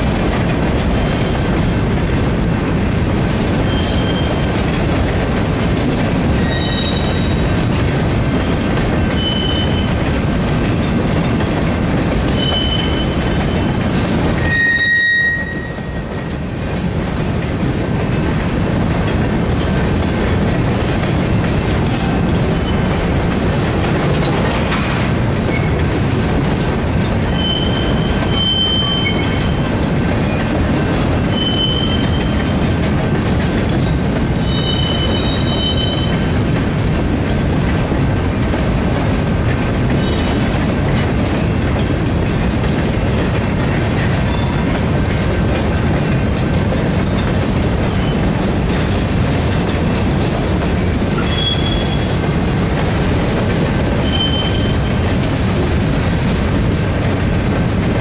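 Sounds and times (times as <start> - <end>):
train wheels rumbling on rails: 0.0 - 58.0
high-pitched wheel squeals: 6.4 - 7.4, 14.4 - 16.0, 27.3 - 29.6, 31.3 - 32.4, 54.0 - 54.9.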